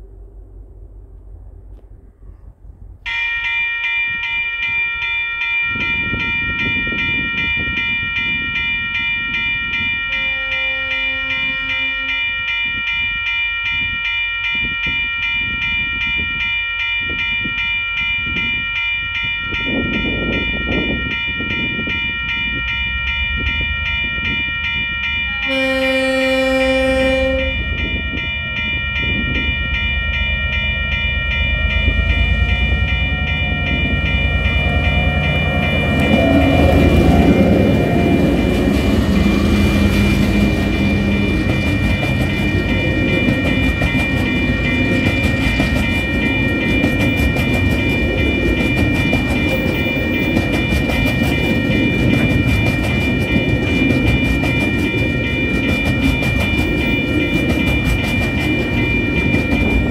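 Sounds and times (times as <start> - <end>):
diesel locomotive engines: 0.0 - 59.9
rapidly pulsing ringing tone: 3.1 - 59.9
train horn blasts: 10.1 - 12.3, 25.2 - 27.8, 33.5 - 41.5.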